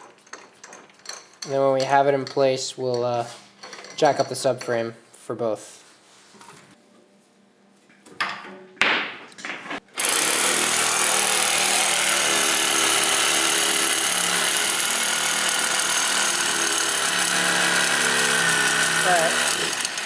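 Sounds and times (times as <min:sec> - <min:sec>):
power tool running: 0:10.0 - 0:20.0.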